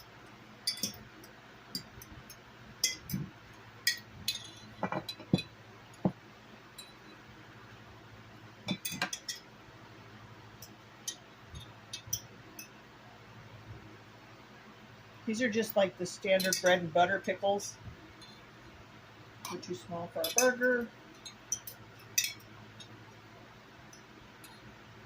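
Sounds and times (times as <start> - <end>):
utensil clinking against glass jar: 0.6 - 1.0, 3.9 - 5.5, 16.4 - 16.8, 19.5 - 22.9.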